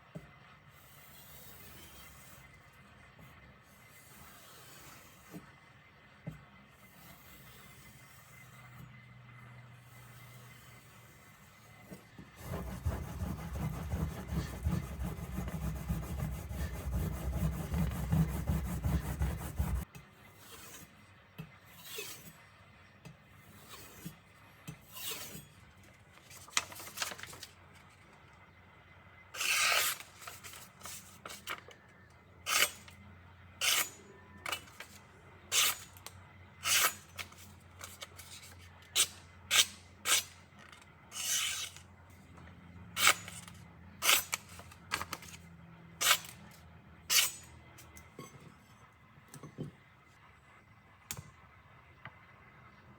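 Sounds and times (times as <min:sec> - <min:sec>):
knife grinding on a whetstone: 0:00.8 - 0:02.6, 0:03.7 - 0:05.4, 0:06.8 - 0:08.9, 0:09.8 - 0:11.7, 0:12.4 - 0:20.9, 0:21.7 - 0:22.3, 0:23.4 - 0:24.1, 0:24.8 - 0:25.6, 0:29.4 - 0:30.6, 0:32.5 - 0:32.9, 0:33.6 - 0:36.0, 0:36.6 - 0:40.4, 0:41.1 - 0:41.8, 0:43.0 - 0:45.4, 0:46.0 - 0:46.4, 0:47.1 - 0:47.5.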